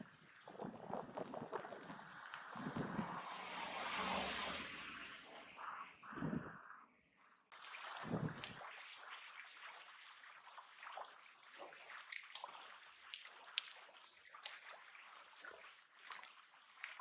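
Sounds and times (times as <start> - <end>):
small sharp ticks and splashes: 0.0 - 5.0, 7.5 - 17.0
seawater washing at shoreline: 7.6 - 17.0.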